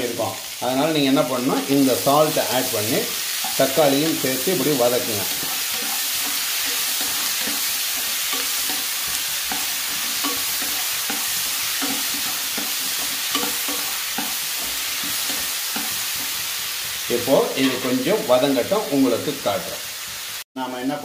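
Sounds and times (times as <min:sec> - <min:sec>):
vegetables sizzling in oil: 0:00.0 - 0:21.0
wooden spatula scraping: 0:01.4 - 0:16.4.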